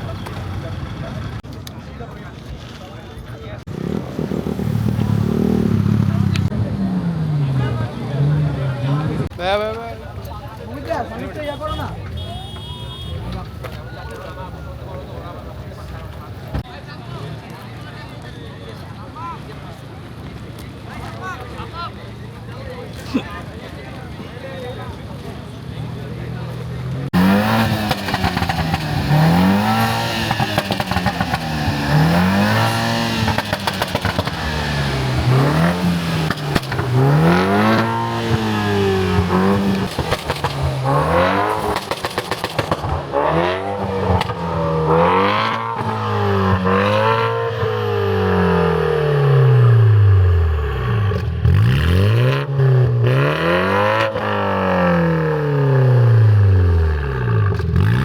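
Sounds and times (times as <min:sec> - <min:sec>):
car engine revving: 0:03.6 - 0:09.5, 0:26.5 - 0:58.0.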